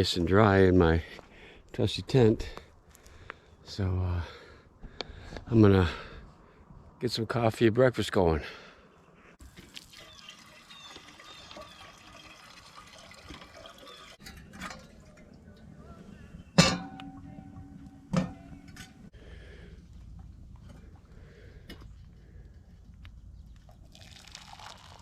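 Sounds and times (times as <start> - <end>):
water poured into a pot: 9.4 - 15.5, 23.9 - 25.0
metal cookware clanking: 13.6 - 15.6, 16.4 - 19.1.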